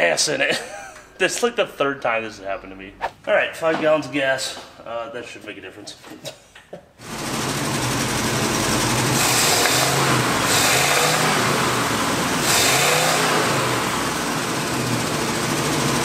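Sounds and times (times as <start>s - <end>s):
truck engine revving: 7.0s - 16.0s.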